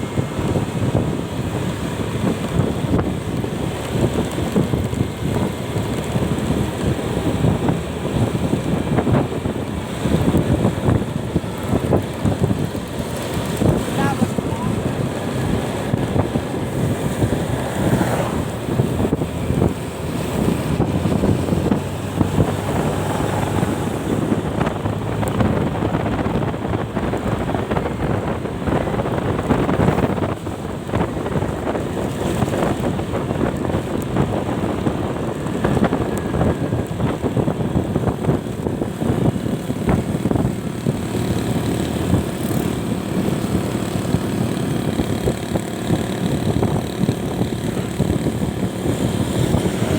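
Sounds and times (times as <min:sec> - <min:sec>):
vehicle engine running: 0:00.0 - 0:49.9
wind buffeting microphone: 0:00.0 - 0:49.9.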